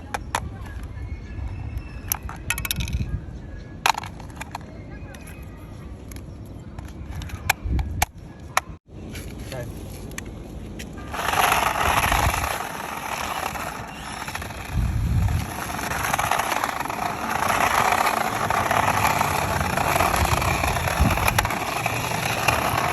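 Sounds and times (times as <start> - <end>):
toy car electric whirr: 11.1 - 22.9.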